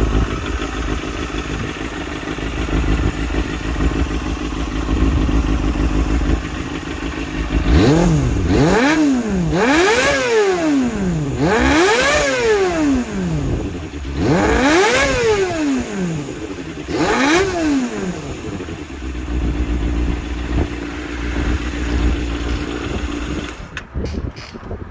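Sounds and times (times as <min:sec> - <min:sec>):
motorcycle engine revving: 0:00.0 - 0:24.6.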